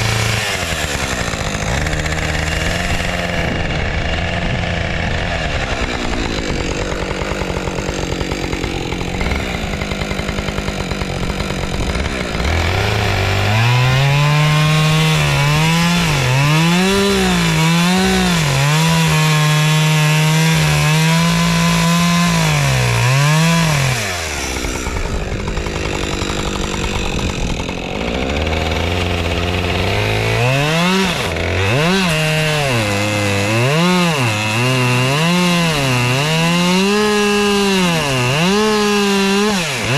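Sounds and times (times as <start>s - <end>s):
chainsaw cutting wood: 0.0s - 39.9s
chainsaw idling and revving: 0.0s - 39.9s.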